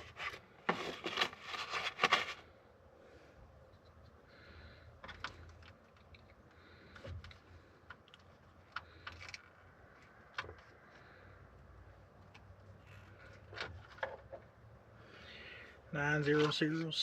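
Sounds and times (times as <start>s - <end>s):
small plastic parts clicking: 5.0s - 11.0s.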